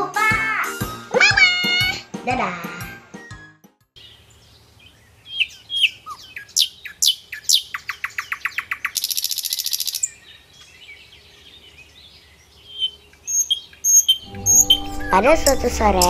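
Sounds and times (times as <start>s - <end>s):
songbirds chirping and singing: 4.0s - 16.0s
rapid high bird trill: 12.8s - 16.0s.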